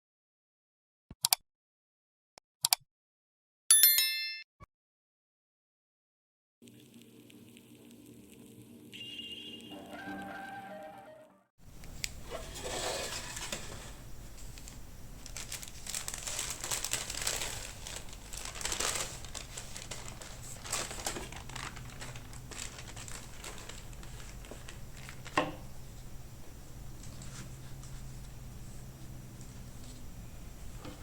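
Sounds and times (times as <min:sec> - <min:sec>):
crinkly packaging crumpling: 0:14.4 - 0:25.4.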